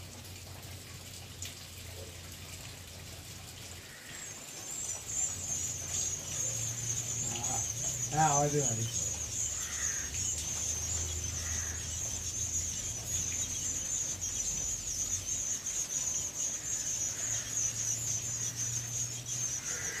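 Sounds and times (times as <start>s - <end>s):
birds chattering: 3.8s - 20.0s.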